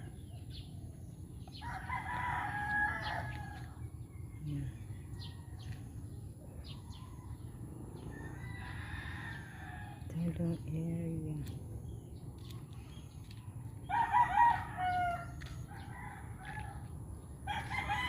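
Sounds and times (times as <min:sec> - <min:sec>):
rooster crowing: 0:01.6 - 0:03.7, 0:08.2 - 0:10.0, 0:13.9 - 0:16.8, 0:17.5 - 0:18.0.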